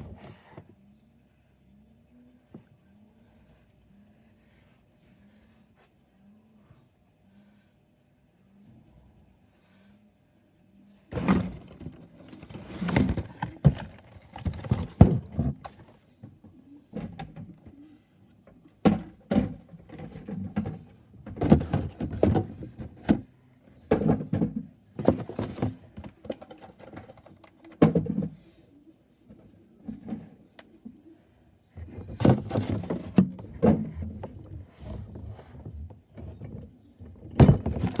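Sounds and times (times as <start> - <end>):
rubbish clattering in garbage truck: 32.1 - 34.4.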